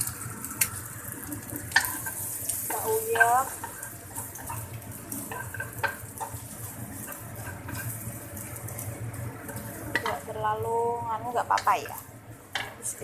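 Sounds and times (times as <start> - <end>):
egg and shrimp sizzling in oil: 0.0 - 13.0
wooden spatula scraping wok: 1.5 - 10.4.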